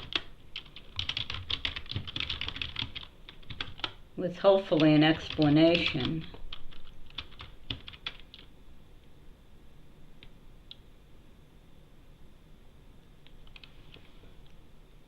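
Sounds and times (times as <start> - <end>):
computer keyboard keystrokes: 0.0 - 4.0, 4.8 - 8.5, 13.3 - 13.7
faint low hum: 0.0 - 15.0.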